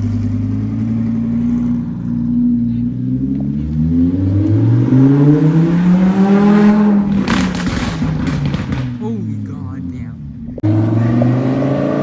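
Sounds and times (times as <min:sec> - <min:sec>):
car engine revving: 0:00.0 - 0:12.0
exhaust crackles and pops: 0:07.0 - 0:11.4.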